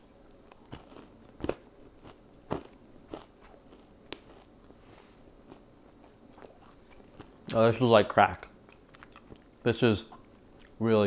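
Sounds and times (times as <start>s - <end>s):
person chewing granola bar: 0.4s - 4.8s, 5.4s - 7.5s, 8.7s - 10.8s.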